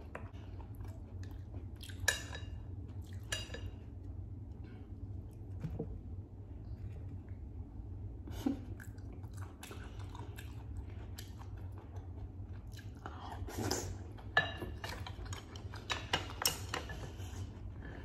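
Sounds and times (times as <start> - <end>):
low hum: 0.0 - 18.0
wet chewing and mouth clicks: 8.8 - 16.7.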